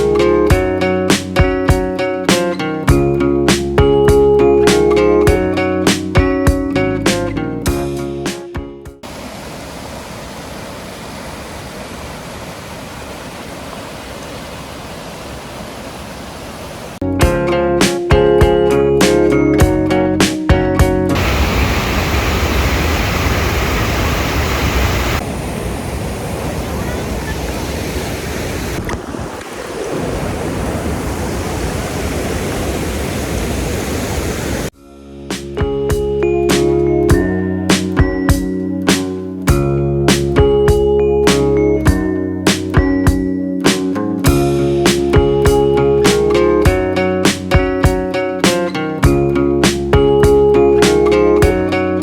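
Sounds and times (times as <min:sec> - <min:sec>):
waterfall rushing: 0:09.0 - 0:17.0, 0:21.2 - 0:34.7.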